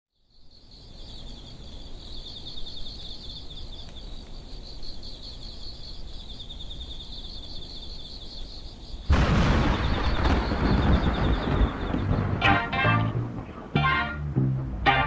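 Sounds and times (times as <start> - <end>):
low rumbling noise: 9.1 - 14.9.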